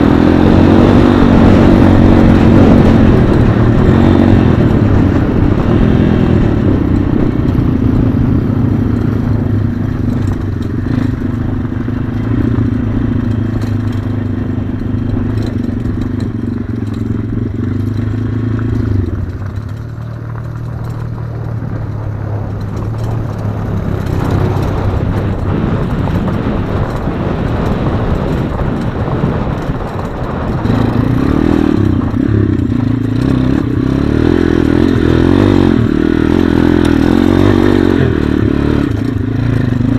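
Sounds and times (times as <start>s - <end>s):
pit bike engine running: 0.0s - 39.9s.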